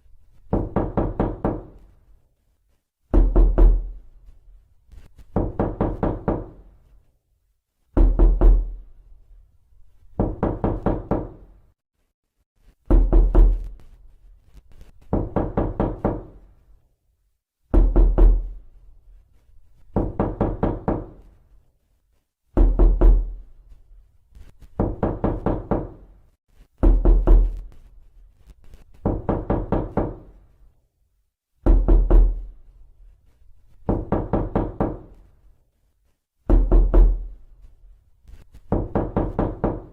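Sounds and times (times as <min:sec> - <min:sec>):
knocking on a door: 0:00.5 - 0:01.9, 0:03.1 - 0:04.0, 0:05.3 - 0:06.7, 0:08.0 - 0:08.8, 0:10.1 - 0:11.5, 0:12.9 - 0:13.8, 0:15.0 - 0:16.4, 0:17.7 - 0:18.6, 0:19.9 - 0:21.3, 0:22.6 - 0:23.4, 0:24.8 - 0:26.1, 0:26.8 - 0:27.7, 0:29.0 - 0:30.4, 0:31.6 - 0:32.5, 0:33.8 - 0:35.2, 0:36.5 - 0:37.4, 0:38.7 - 0:39.9.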